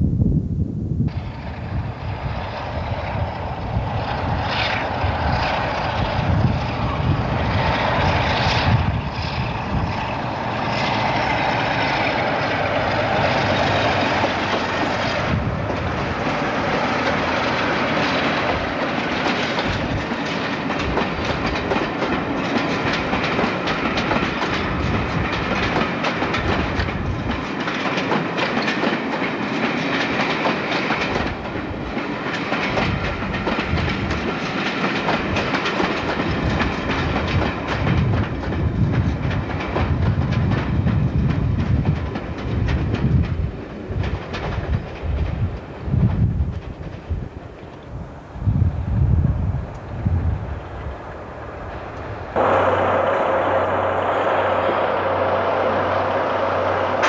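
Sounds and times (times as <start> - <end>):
diesel train passing: 1.0 - 57.0
wheels clattering over rail joints: 4.8 - 48.0.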